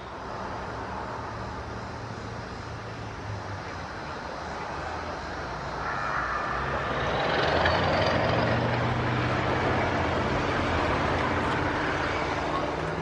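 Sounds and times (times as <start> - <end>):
warning sirens: 5.6 - 13.0
low industrial rumble: 5.7 - 9.8.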